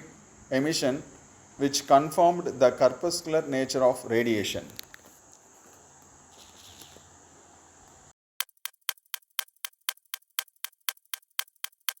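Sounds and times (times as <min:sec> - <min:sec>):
faint hiss: 0:00.0 - 0:08.1
sharp even ticking: 0:08.4 - 0:12.0.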